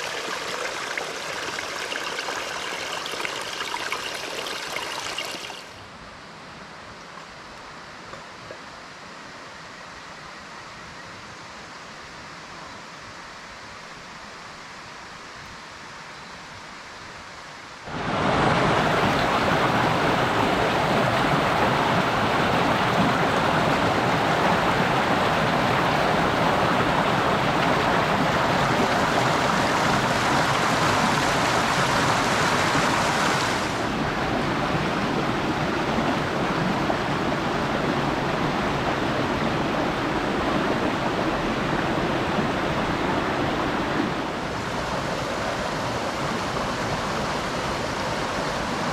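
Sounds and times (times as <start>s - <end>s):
water rushing: 0.0s - 5.8s, 17.8s - 48.9s.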